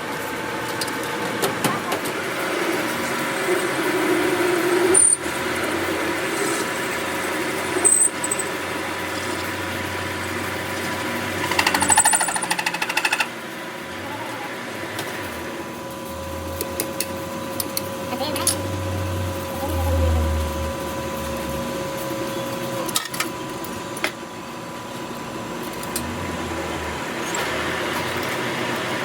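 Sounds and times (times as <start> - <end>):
workshop machine noise: 0.0 - 29.0.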